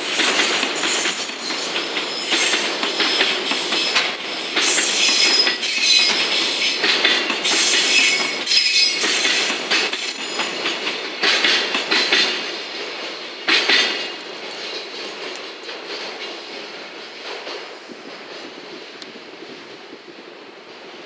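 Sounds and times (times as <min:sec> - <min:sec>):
wheels clattering over rail joints: 0:00.2 - 0:12.5.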